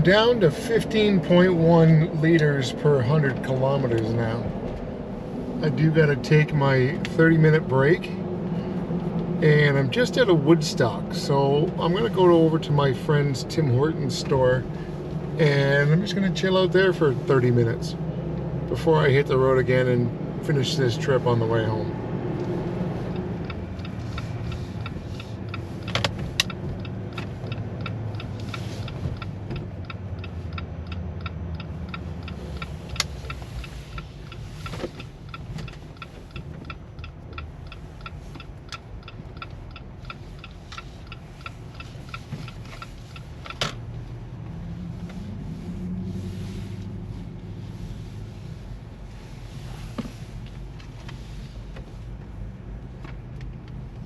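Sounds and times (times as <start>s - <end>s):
turn-signal indicator ticking: 0.0s - 2.5s, 22.4s - 45.2s
engine hum inside cab: 0.0s - 54.0s.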